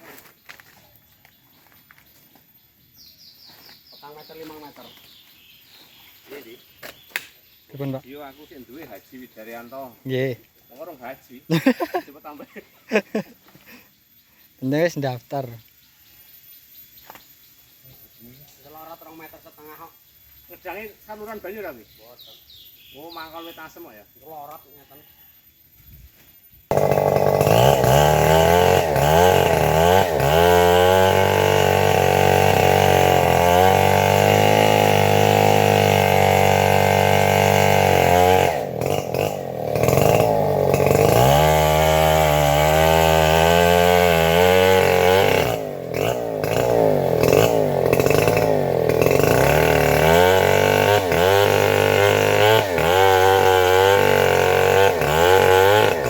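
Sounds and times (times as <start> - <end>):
chainsaw running and cutting: 26.7 - 56.0.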